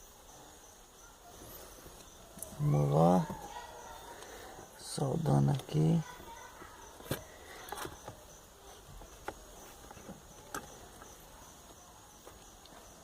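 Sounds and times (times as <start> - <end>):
insect chirring: 0.0 - 13.0.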